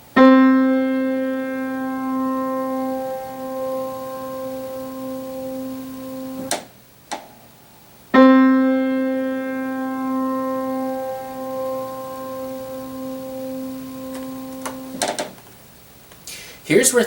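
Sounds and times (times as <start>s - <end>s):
piano note: 0.0s - 6.6s, 8.1s - 15.4s
piano damper click: 6.2s - 7.4s, 11.4s - 15.5s.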